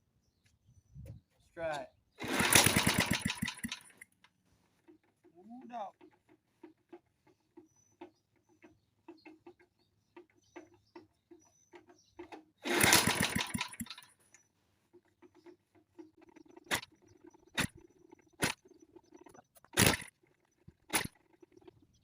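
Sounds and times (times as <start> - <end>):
engine pops: 2.2 - 4.0, 4.8 - 14.2, 14.9 - 22.0
small engine running briefly: 2.2 - 4.0, 12.6 - 14.1, 19.8 - 20.1.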